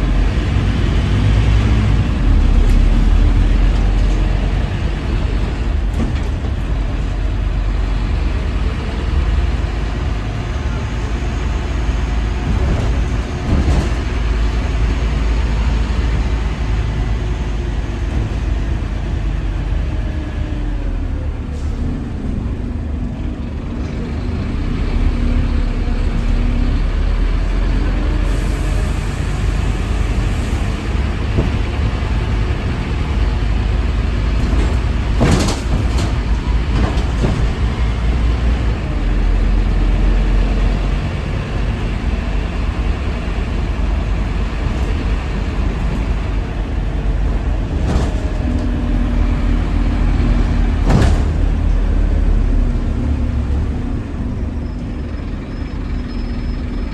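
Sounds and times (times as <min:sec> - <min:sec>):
bus diesel engine running: 0:00.0 - 0:56.9
air brake hiss: 0:28.2 - 0:30.8.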